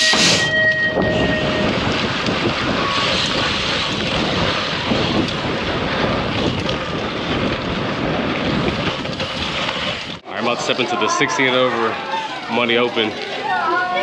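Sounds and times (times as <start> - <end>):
wind buffeting microphone: 0.5 - 11.0.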